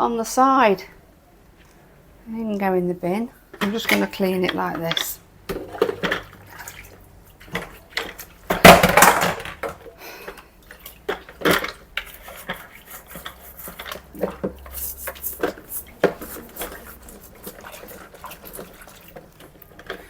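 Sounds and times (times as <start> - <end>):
plastic parts clattering: 7.5 - 10.4.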